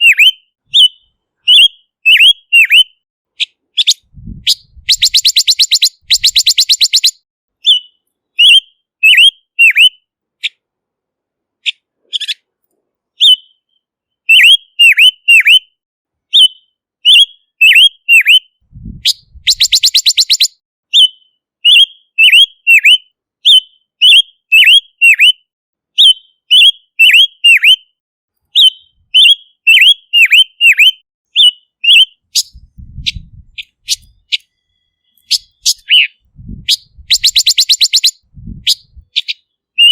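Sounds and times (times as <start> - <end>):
bird chattering rattles: 3.4 - 7.2, 19.1 - 20.5, 31.9 - 39.9.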